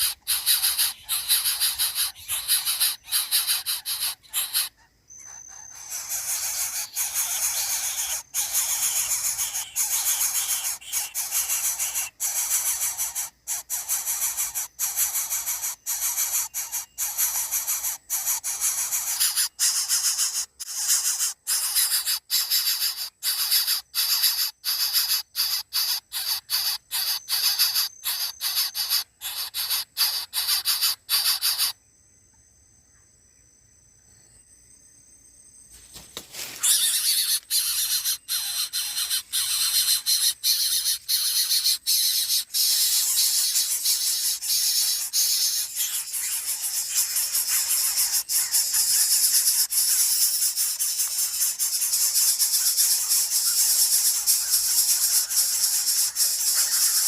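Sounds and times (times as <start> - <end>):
high hissing buzz: 0.0 - 4.7.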